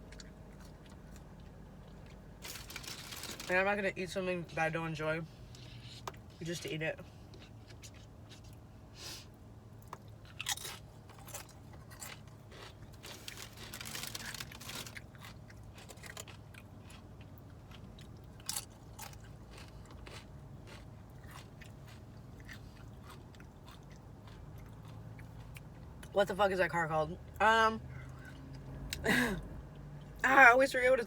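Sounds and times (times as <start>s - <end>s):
chewing crunchy food: 0.0s - 3.6s, 7.0s - 8.7s, 9.8s - 26.1s.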